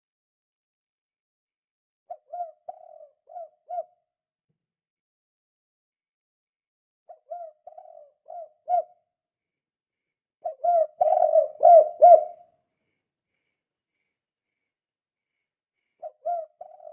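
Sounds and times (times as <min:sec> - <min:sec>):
dove cooing: 0:02.1 - 0:04.0, 0:07.1 - 0:09.0, 0:10.4 - 0:12.5, 0:16.0 - 0:16.9.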